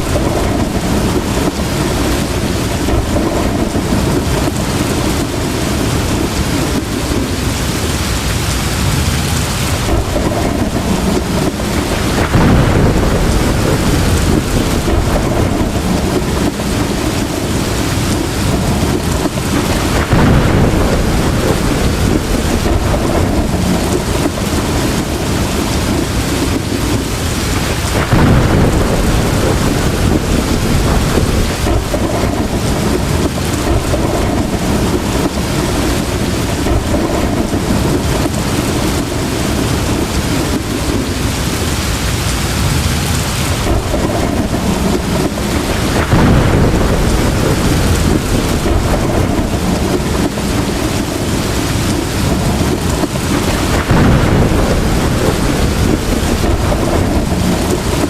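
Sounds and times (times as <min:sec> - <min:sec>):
heavy rain pouring: 0:00.0 - 0:58.0
rolling thunder: 0:00.0 - 0:58.0.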